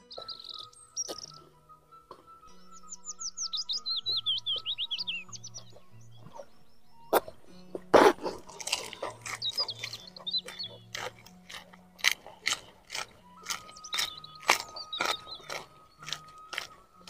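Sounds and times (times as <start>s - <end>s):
birds chirping: 0.0s - 17.0s
crunchy chewing of vegetable: 0.1s - 1.4s, 4.8s - 17.0s.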